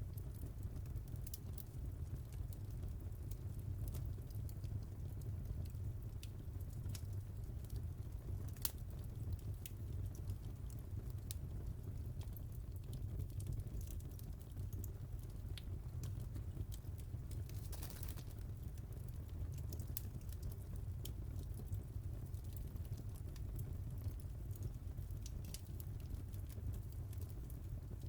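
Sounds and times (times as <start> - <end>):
low rumble of flames: 0.0 - 28.0
fire crackling pops: 0.1 - 28.0.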